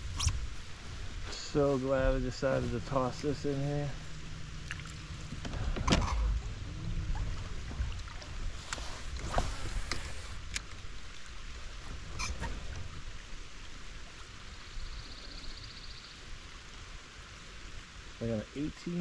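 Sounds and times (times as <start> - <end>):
rain and water noise: 0.0 - 19.0.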